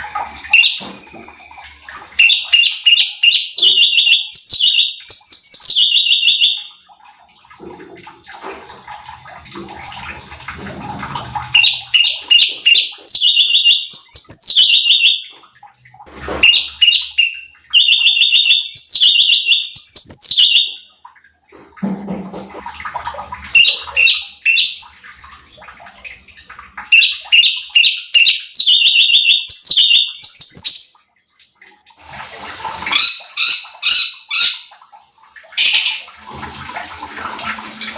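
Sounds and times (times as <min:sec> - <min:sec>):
bird chirping: 0:00.5 - 0:00.8, 0:02.2 - 0:06.7, 0:11.5 - 0:15.4, 0:16.4 - 0:20.8, 0:23.6 - 0:24.8, 0:26.9 - 0:31.0, 0:32.9 - 0:34.7.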